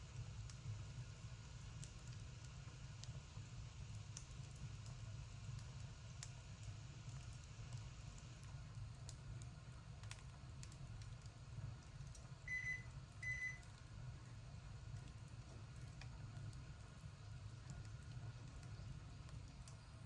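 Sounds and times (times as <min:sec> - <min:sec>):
low steady hum: 0:10.0 - 0:20.0.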